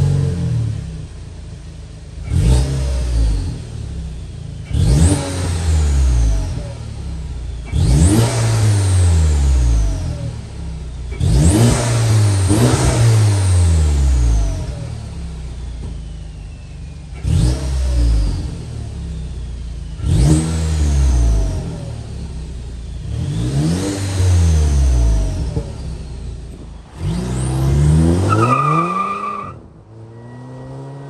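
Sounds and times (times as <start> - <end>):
car engine revving: 2.2 - 16.2, 17.1 - 31.0
thin high turbo whistle: 27.0 - 30.8.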